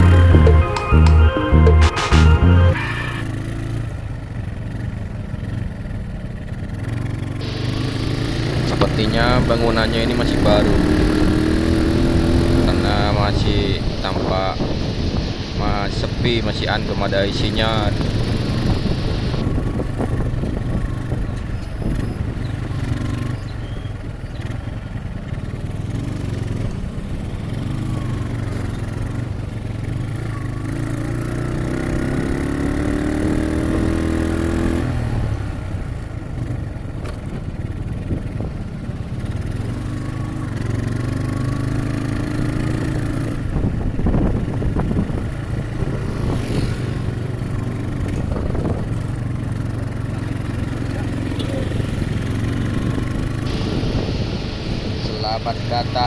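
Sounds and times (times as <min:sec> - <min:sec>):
motorcycle engine running: 0:00.0 - 0:00.7, 0:02.6 - 0:14.0, 0:17.7 - 0:56.0.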